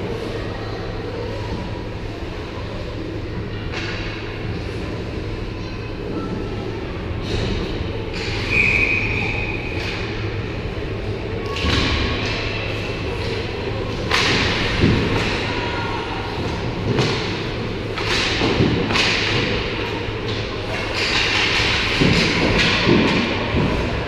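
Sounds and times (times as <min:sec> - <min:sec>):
pucks and sticks hitting boards: 0:11.4 - 0:24.0.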